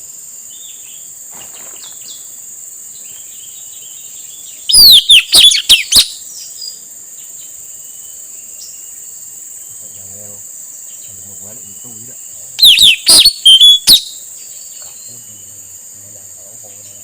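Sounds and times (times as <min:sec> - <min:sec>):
high-pitched insect drone: 0:00.0 - 0:17.0
parrot whistled calls: 0:04.7 - 0:06.2, 0:12.6 - 0:14.2.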